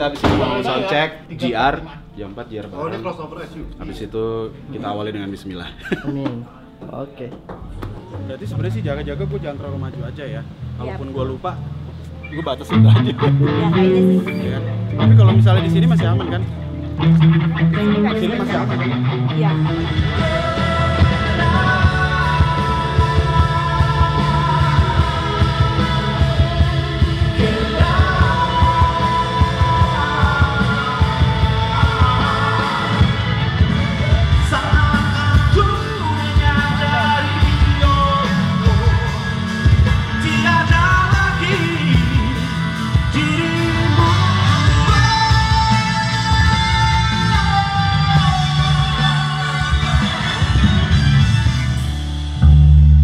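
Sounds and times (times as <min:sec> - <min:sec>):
pop-rock band with singing: 0:17.0 - 0:53.0.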